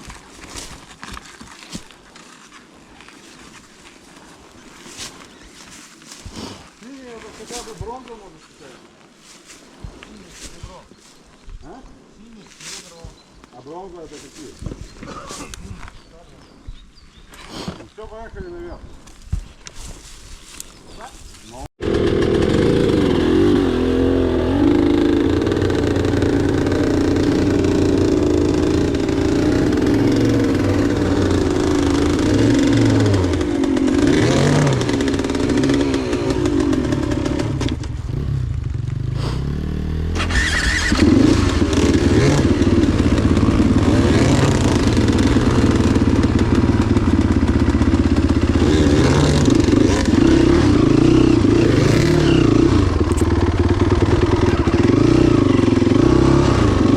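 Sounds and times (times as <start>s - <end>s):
motorcycle engine under throttle: 21.8s - 56.9s.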